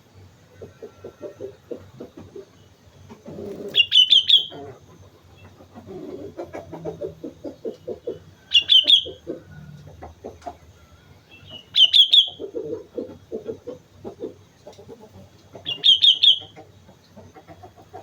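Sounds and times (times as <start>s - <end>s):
low rapid clucking: 0.2s - 10.8s, 11.4s - 18.0s
bird singing bubbly phrases: 3.6s - 4.6s, 8.4s - 9.2s, 11.3s - 12.4s, 15.6s - 16.6s.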